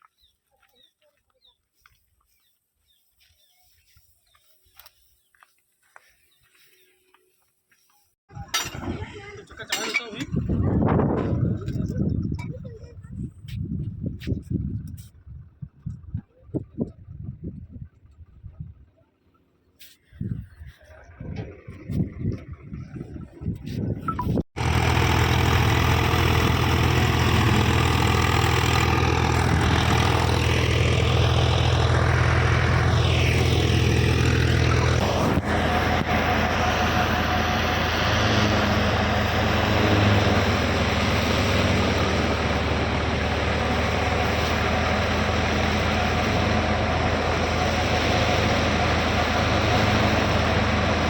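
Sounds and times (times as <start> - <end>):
tractor running thresher: 8.4 - 12.5, 21.2 - 51.0.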